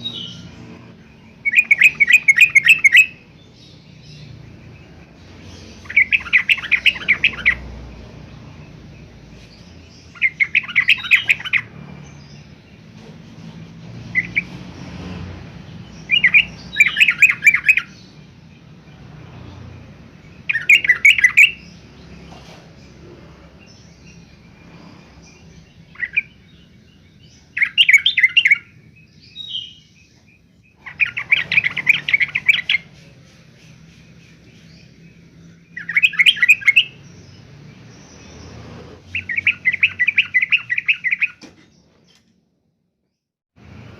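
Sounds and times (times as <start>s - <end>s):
bird singing bubbly chattering notes: 5.3s - 8.0s.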